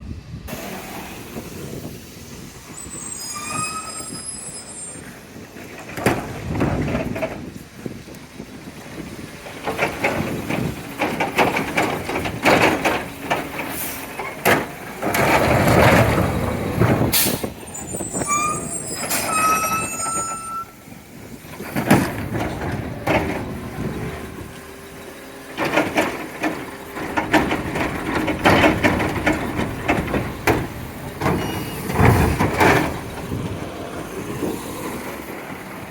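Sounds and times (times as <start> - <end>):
air brakes hissing: 0.5 - 5.4, 13.6 - 14.3, 17.1 - 20.8
brief high squeals: 2.8 - 5.1, 17.7 - 20.8
truck engine running: 5.0 - 19.6, 20.3 - 35.9
bangs and clatters of carts: 5.4 - 35.9.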